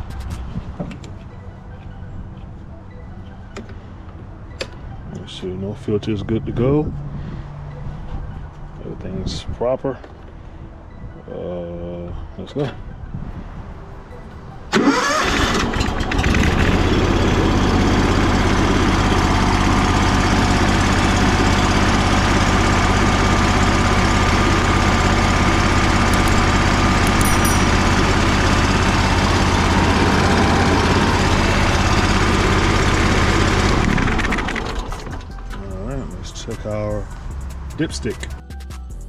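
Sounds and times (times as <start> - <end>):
pressure washer engine running: 14.8 - 35.1.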